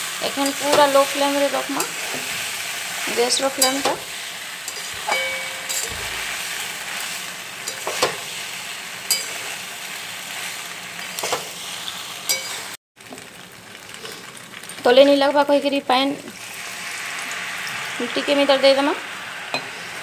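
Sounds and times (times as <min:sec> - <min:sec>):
food sizzling in a pan: 0:00.0 - 0:20.0
metal spoon scraping a pan: 0:00.3 - 0:09.7, 0:10.4 - 0:11.6, 0:12.2 - 0:12.8
metal clink on a pan: 0:03.6 - 0:04.0, 0:04.7 - 0:06.0, 0:09.1 - 0:09.4, 0:12.3 - 0:12.7.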